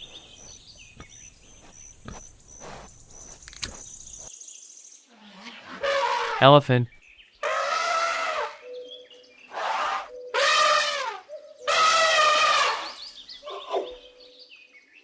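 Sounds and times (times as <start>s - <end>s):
birds chirping faintly: 0.0s - 5.7s
elephant trumpeting: 5.6s - 6.5s, 7.4s - 8.6s, 9.5s - 13.8s.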